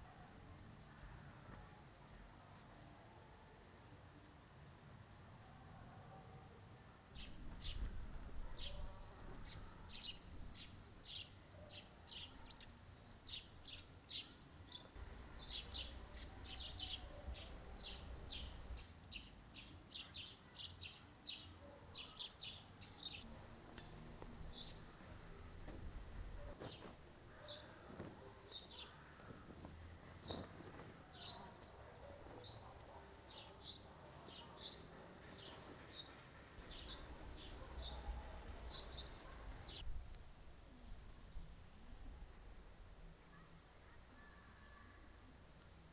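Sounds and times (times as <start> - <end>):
small birds chirping: 7.2 - 25.4, 26.4 - 45.9.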